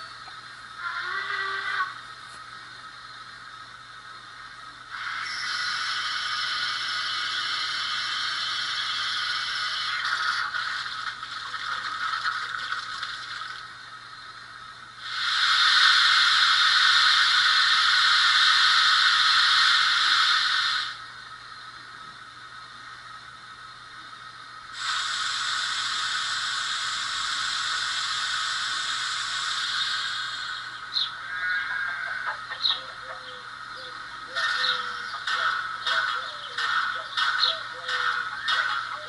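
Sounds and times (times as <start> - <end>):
model locomotive steam hiss: 3.5 - 12.8, 15.0 - 21.4, 24.6 - 39.0.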